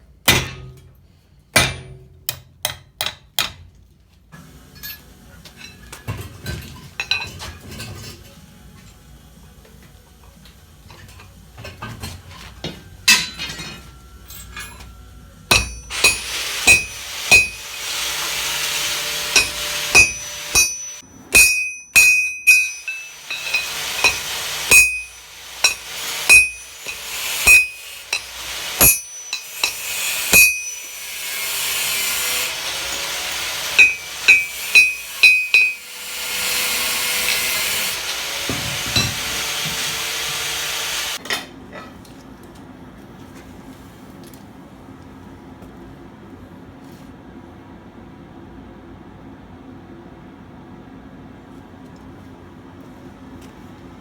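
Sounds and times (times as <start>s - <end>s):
hammer striking iron on anvil: 0.2s - 0.9s, 1.5s - 3.7s, 13.0s - 14.9s, 15.5s - 40.4s
steady hiss: 22.7s - 31.4s.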